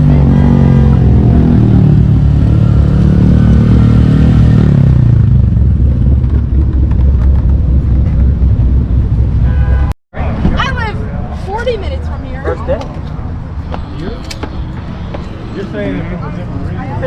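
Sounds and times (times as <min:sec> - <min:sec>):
vehicle engine running: 0:00.0 - 0:09.9.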